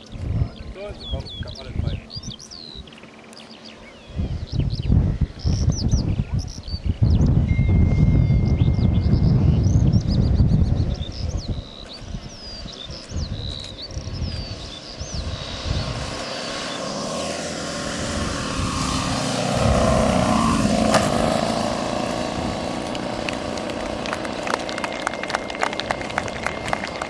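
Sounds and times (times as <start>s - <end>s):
birds chirping: 0.0s - 27.0s
model plane propeller drone: 0.0s - 27.0s
wind buffeting microphone: 0.0s - 27.0s.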